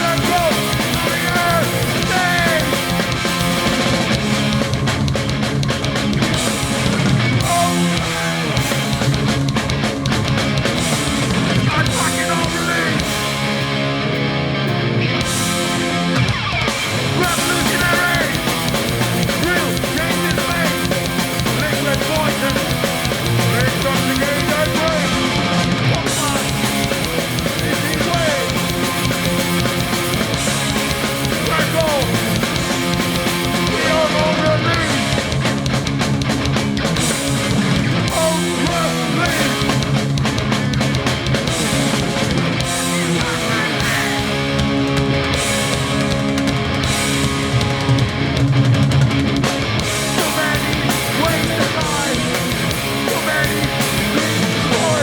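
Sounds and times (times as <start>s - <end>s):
electric guitars: 0.0s - 55.0s
punk band playing live: 0.0s - 55.0s.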